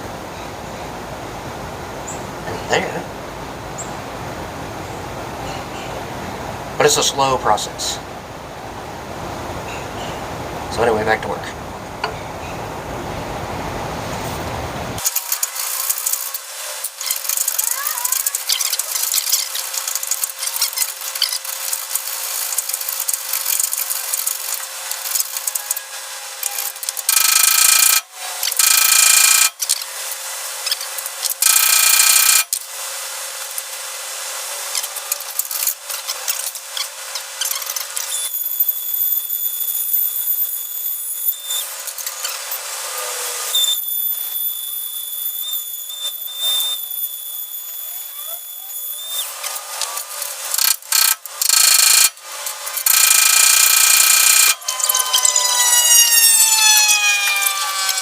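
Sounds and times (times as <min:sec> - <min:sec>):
high-pitched whine: 0:14.8 - 0:58.0
hacksaw squealing: 0:15.0 - 0:29.8, 0:30.6 - 0:32.5, 0:34.8 - 0:52.1, 0:52.7 - 0:58.0.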